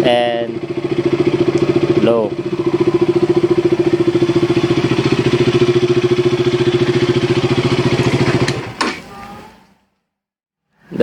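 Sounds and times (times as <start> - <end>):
motorcycle engine idling: 0.0 - 9.6.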